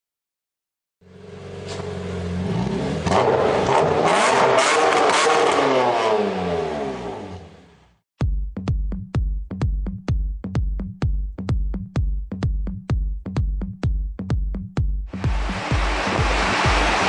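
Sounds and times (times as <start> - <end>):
car engine revving: 1.0 - 7.9, 15.2 - 17.0
thumping electronic music beat: 8.2 - 17.0
engine crackles: 15.2 - 17.0.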